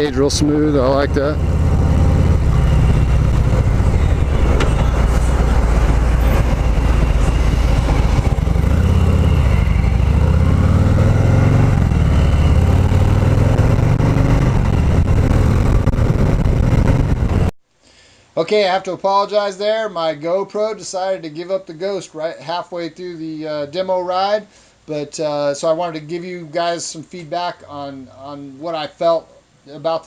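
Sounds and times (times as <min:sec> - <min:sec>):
motorcycle engine running loud: 0:00.0 - 0:17.5
road and wind noise: 0:00.0 - 0:17.5.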